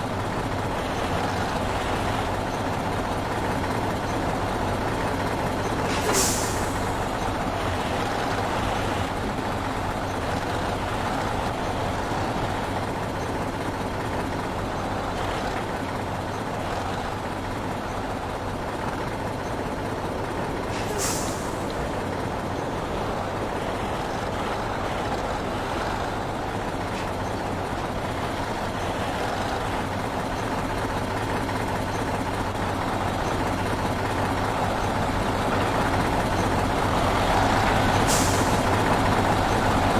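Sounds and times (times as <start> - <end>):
heavy truck engine drone: 0.0 - 39.9
air brake hisses: 5.9 - 7.0, 20.7 - 21.8, 38.1 - 38.7.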